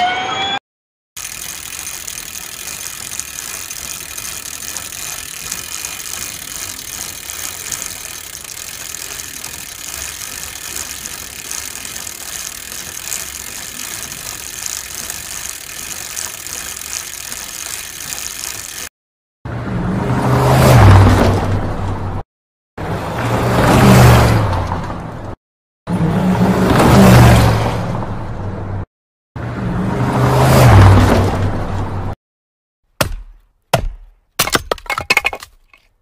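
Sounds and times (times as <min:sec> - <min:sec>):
bicycle freewheel ratchet clicking: 0:01.2 - 0:18.9
chain and tyre hiss: 0:01.2 - 0:18.9.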